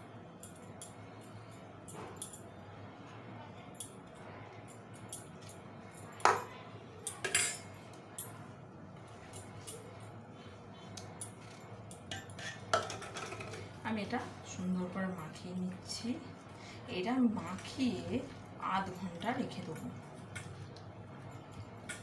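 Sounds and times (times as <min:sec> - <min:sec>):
spoon scraping a bowl: 0:12.0 - 0:13.6.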